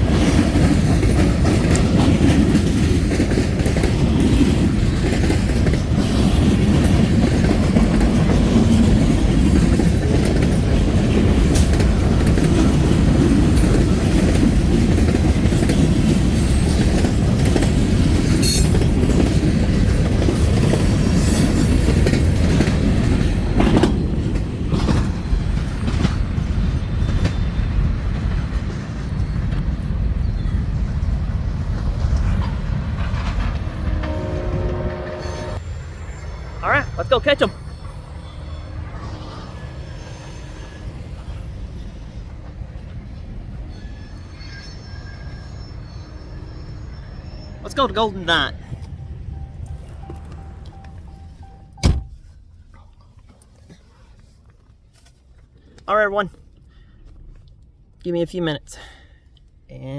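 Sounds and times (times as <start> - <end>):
wheels clicking over rail joints: 0.0 - 30.8
freight train rumbling past: 0.0 - 52.7.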